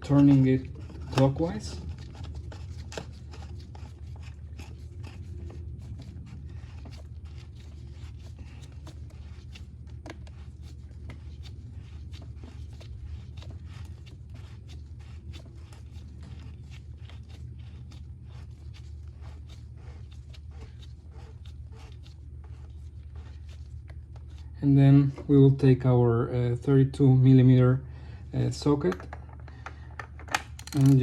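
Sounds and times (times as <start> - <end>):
steady low hum: 0.0 - 31.0
plastic cap scraping and clicking: 28.9 - 31.0.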